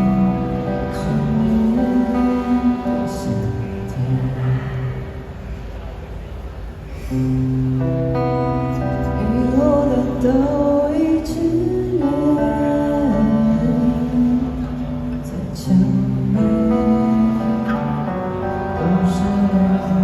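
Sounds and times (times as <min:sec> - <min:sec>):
person singing: 0:00.0 - 0:05.0, 0:08.6 - 0:20.0.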